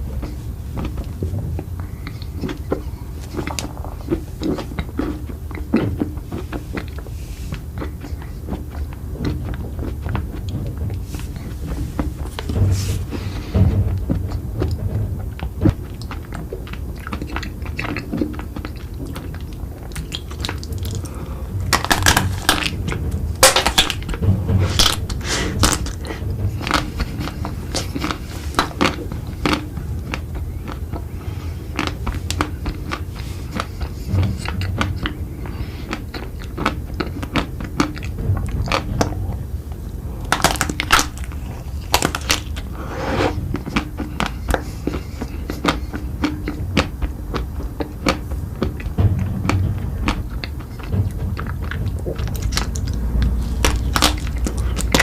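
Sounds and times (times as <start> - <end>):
chewing: 0.0 - 55.0
crunchy bites: 21.7 - 30.9, 40.2 - 42.8, 52.2 - 55.0.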